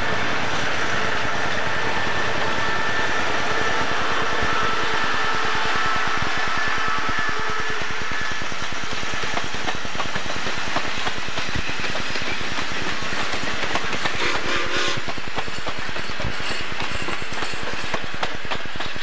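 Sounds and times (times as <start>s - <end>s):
wheels clicking over rail joints: 8.6s - 19.0s.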